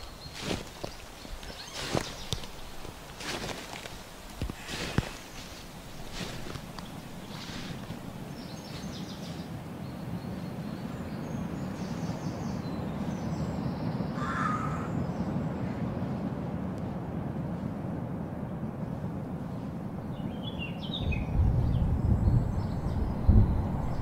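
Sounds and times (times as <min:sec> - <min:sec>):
low background rumble: 0:00.0 - 0:24.0
harsh bird call: 0:14.2 - 0:15.0
bird chirps: 0:20.1 - 0:24.0.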